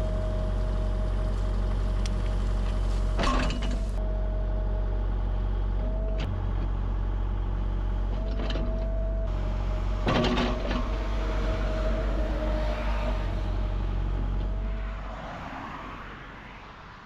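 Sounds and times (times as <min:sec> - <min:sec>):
excavator engine rumbling: 0:00.0 - 0:17.0.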